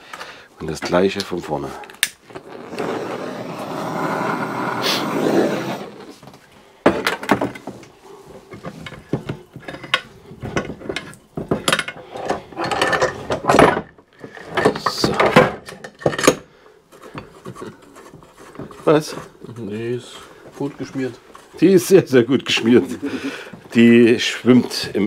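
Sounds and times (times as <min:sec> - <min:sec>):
metallic knocks and clinks: 0:08.5 - 0:14.0.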